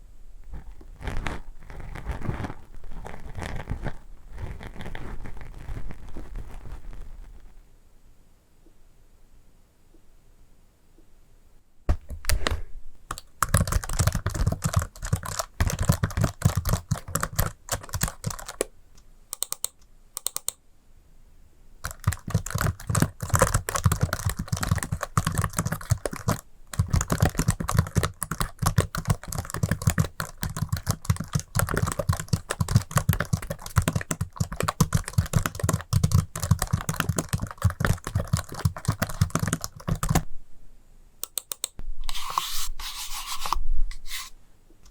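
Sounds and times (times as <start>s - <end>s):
rapid tapping and clicking: 13.1s - 18.7s, 21.8s - 40.2s.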